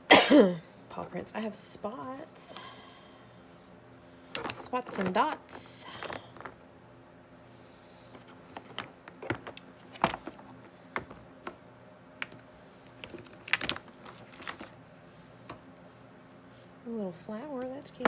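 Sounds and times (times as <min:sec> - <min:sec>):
small hard pieces clicking: 0:13.0 - 0:14.6.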